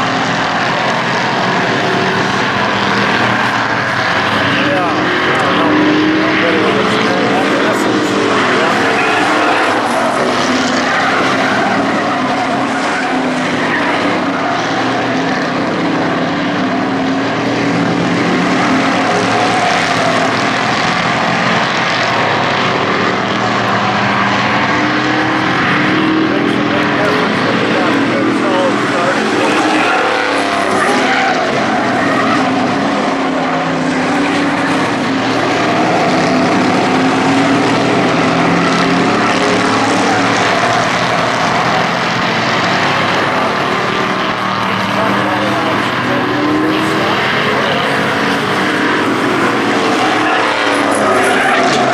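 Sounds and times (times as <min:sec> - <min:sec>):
model race truck engines: 0:00.0 - 0:51.9.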